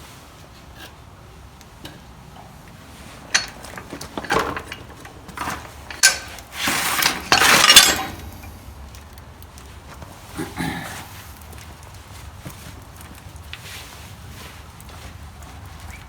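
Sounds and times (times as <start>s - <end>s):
metal parts clinking and knocking: 3.2s - 8.6s.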